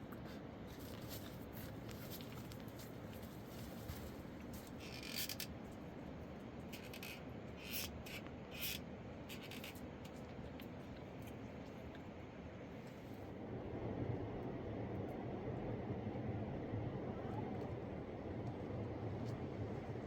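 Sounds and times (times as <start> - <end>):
steady low rumble: 10.8 - 20.0.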